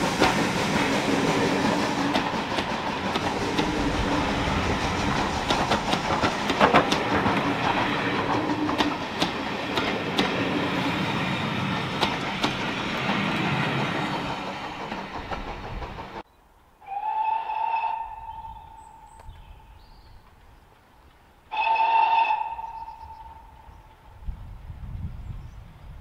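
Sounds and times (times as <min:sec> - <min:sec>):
wheels clicking on rail joints: 0:00.0 - 0:16.3
railway coaches rumbling past: 0:00.0 - 0:26.0
steam locomotive whistle: 0:03.3 - 0:05.2, 0:16.8 - 0:19.4, 0:21.5 - 0:23.8.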